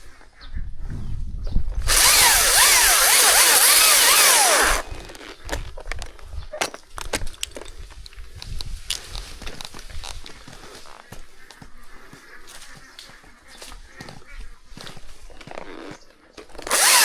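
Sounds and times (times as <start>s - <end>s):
chainsaw cutting wood: 1.8s - 5.6s, 16.5s - 17.0s.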